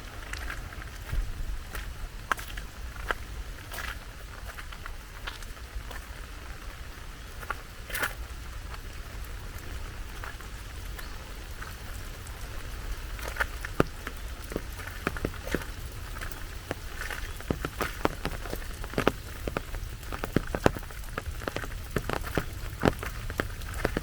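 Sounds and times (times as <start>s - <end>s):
rain falling: 0.0s - 24.0s
sharp raindrop hits: 7.4s - 24.0s.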